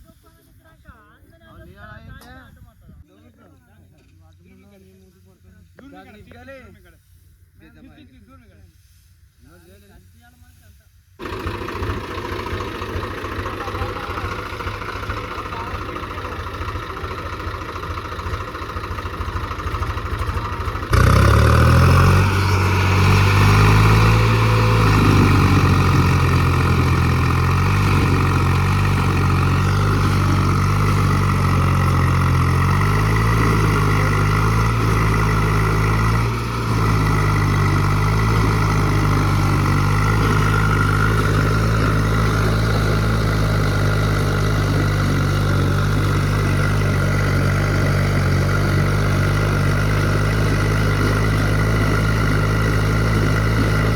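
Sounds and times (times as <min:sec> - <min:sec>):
tractor diesel engine running: 0:11.2 - 0:53.9.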